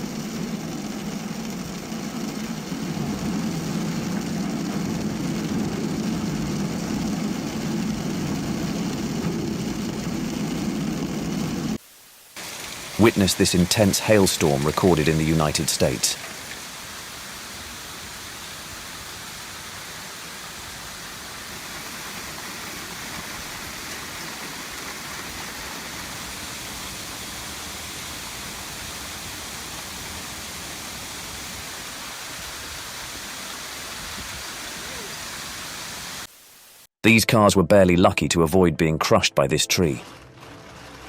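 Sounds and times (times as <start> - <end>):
hail and rain falling: 11.8 - 36.3.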